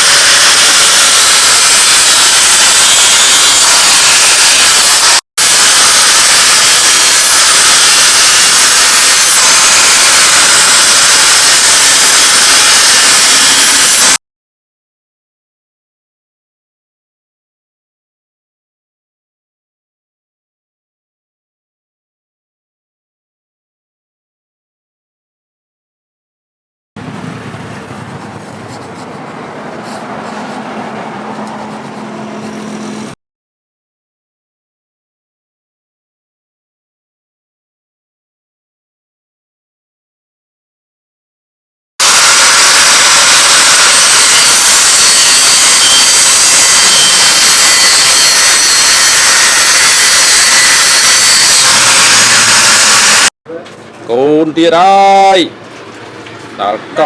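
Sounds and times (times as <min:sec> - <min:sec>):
power grinder grinding steel: 0:00.0 - 0:14.2, 0:42.0 - 0:53.3
broad rushing noise: 0:27.0 - 0:33.2.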